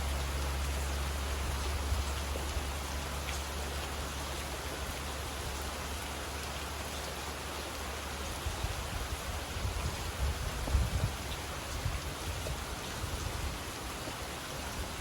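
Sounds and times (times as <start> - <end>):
low steady rumble: 0.0 - 6.6
steady rain falling: 0.0 - 15.0.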